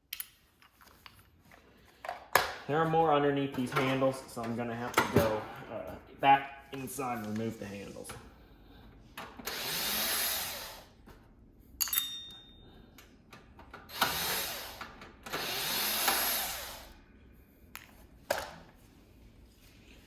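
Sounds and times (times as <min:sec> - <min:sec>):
power drill driving out screws: 0:09.4 - 0:10.9, 0:13.9 - 0:17.0.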